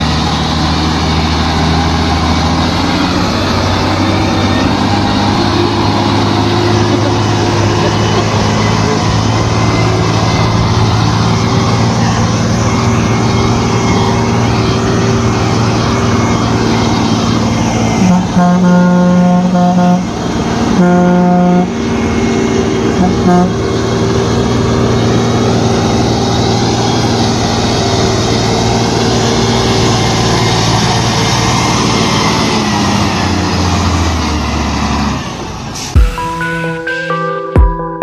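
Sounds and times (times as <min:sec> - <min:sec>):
diesel truck engine running: 0:00.0 - 0:37.0
truck horn blast: 0:17.9 - 0:22.1, 0:22.8 - 0:23.8.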